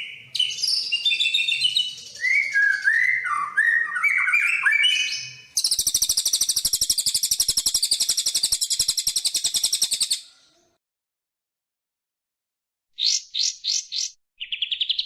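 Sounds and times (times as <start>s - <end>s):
songbird whistled notes: 0.0s - 10.3s
rapid high bird trill: 5.5s - 10.2s.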